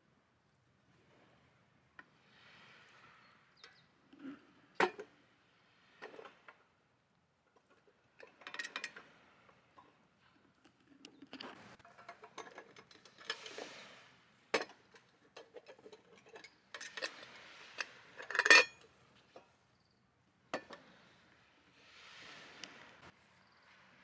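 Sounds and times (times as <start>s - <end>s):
cookware clinks and knocks: 14.6s - 17.3s, 18.2s - 18.8s.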